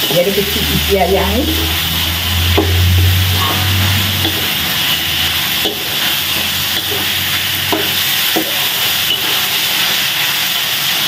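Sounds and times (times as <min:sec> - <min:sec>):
chicken sizzling in a wok: 0:00.0 - 0:11.0
spatula stirring food: 0:01.7 - 0:10.3.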